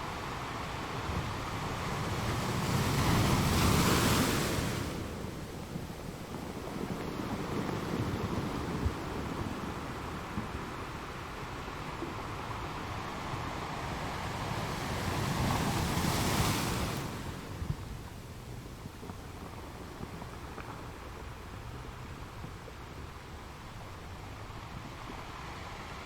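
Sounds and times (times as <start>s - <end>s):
low wash of the sea: 0.0s - 26.0s.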